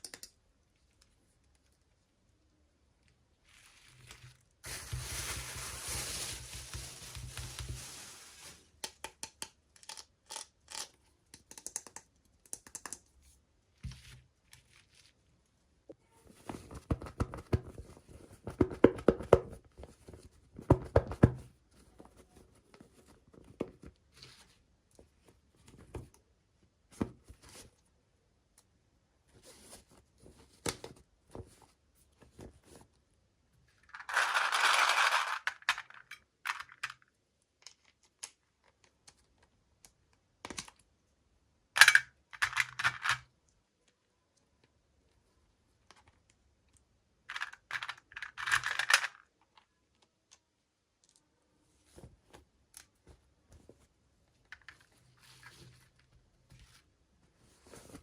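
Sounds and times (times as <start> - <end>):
plastic pieces clicking and tapping: 0.0 - 0.4, 8.8 - 13.2
packaging rustling and crinkling: 3.4 - 8.8.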